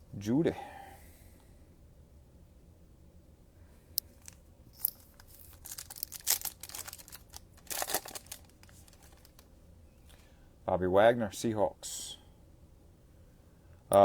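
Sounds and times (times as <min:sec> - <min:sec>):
foil wrapper tearing and crinkling: 0:04.2 - 0:09.5.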